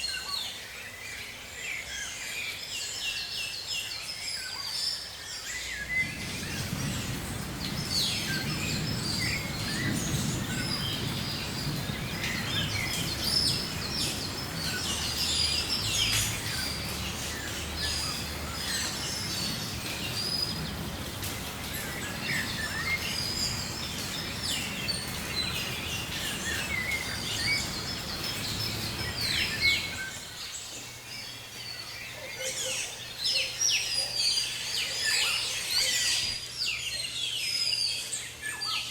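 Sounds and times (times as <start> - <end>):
tropical birds chirping: 0.0 - 38.9
low rumble: 5.8 - 30.2.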